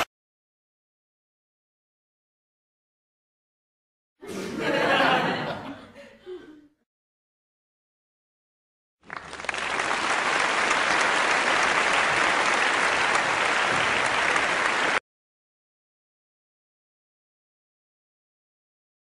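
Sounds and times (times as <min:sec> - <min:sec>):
crowd applause: 0:09.0 - 0:15.0.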